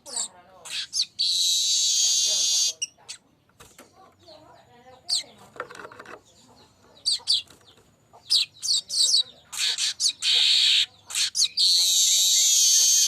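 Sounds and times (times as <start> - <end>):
bird chirping and buzzing: 0.0 - 13.0.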